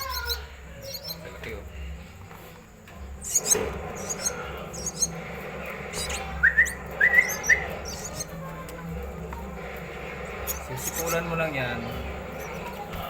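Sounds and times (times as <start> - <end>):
nestlings chirping: 0.0 - 13.0
rising whistle-like notes: 5.9 - 8.2.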